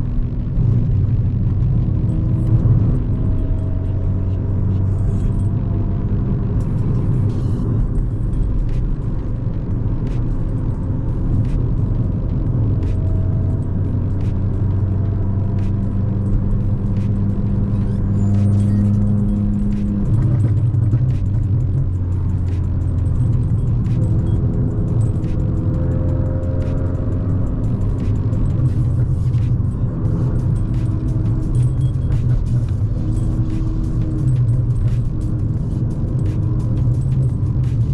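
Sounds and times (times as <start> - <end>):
car engine: 0.0 - 37.9
road rumble: 0.0 - 37.9.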